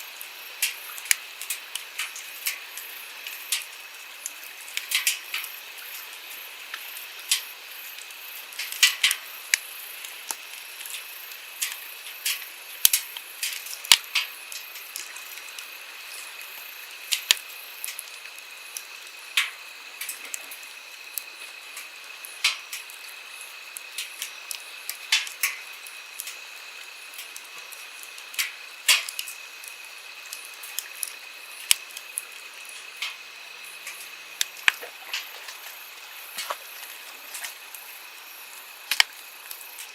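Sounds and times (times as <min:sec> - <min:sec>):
campfire crackling and popping: 0:00.2 - 0:39.9
stream flowing: 0:25.8 - 0:39.9.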